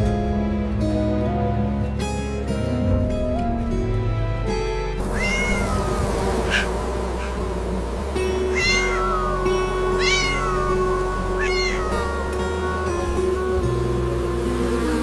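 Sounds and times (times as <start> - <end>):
soft background music: 0.0 - 15.0
cat meowing: 5.0 - 7.6, 8.2 - 13.5.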